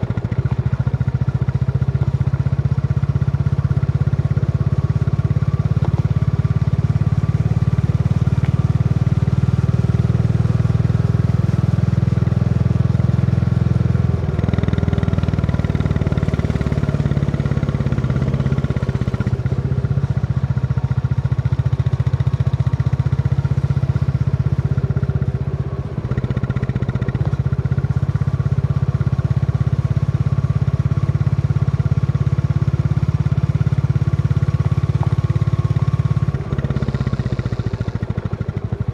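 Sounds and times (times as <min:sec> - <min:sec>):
motorcycle engine thumping: 0:05.6 - 0:06.7, 0:34.4 - 0:37.9.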